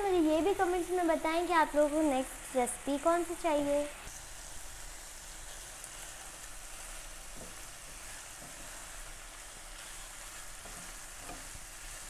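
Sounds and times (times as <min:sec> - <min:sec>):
chicken and onion sizzling: 0:00.0 - 0:12.0
wooden spatula scraping pan: 0:05.5 - 0:12.0.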